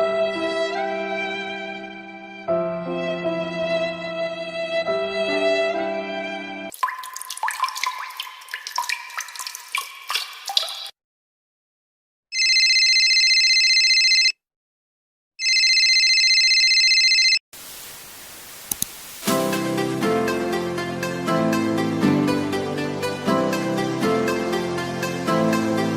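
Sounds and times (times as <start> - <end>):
steady hiss with clicks: 17.6 - 19.6.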